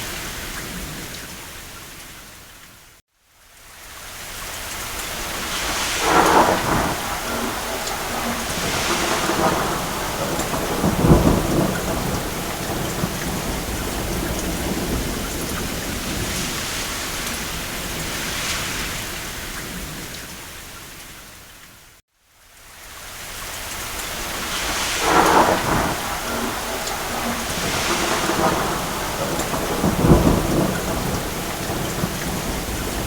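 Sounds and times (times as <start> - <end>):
rain on a roof: 0.0 - 33.0
distant thunder rumbling: 5.2 - 20.2, 24.2 - 33.0.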